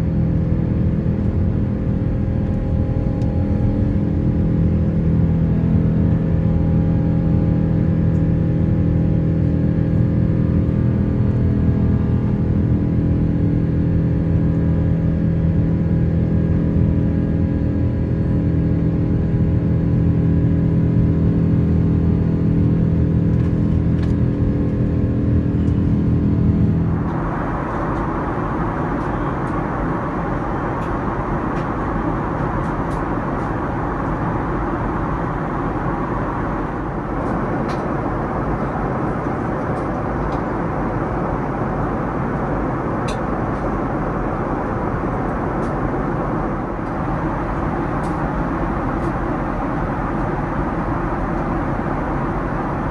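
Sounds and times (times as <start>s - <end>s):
airliner hum with held tones: 0.0s - 52.9s
steady rushing noise: 26.2s - 37.6s.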